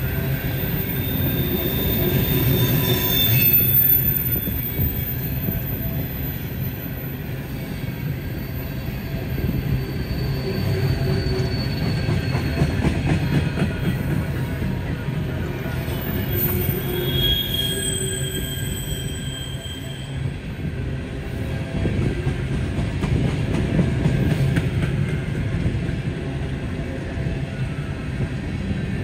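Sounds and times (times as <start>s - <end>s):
freight train rumbling past: 0.0s - 29.0s
high wheel squeals: 0.2s - 14.0s, 15.7s - 20.3s.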